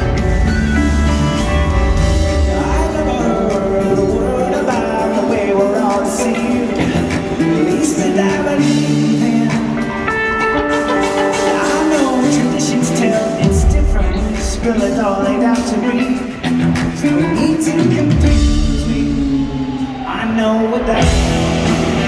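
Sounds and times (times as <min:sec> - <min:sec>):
electric guitar lead: 0:00.0 - 0:22.0
rock band playing: 0:00.0 - 0:22.0
heavy low bass: 0:20.9 - 0:22.0.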